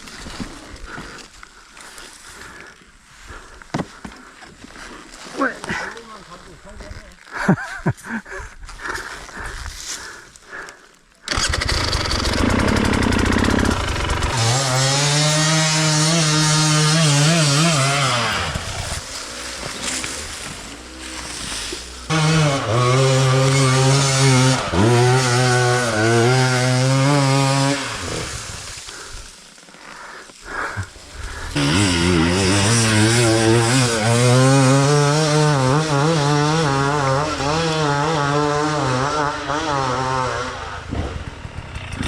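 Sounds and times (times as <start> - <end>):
dirt bike engine revving: 11.3 - 29.2, 30.5 - 42.0.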